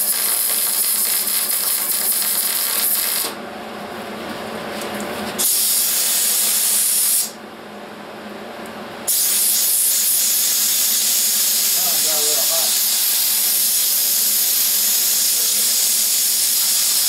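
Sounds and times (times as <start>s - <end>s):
welder hissing: 0.0s - 3.4s, 5.4s - 7.4s, 9.1s - 17.0s.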